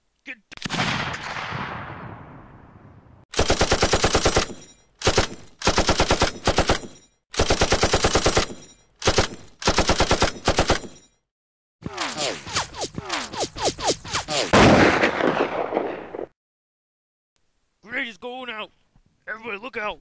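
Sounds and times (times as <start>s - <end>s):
machine-gun fire bursts: 3.3s - 10.9s.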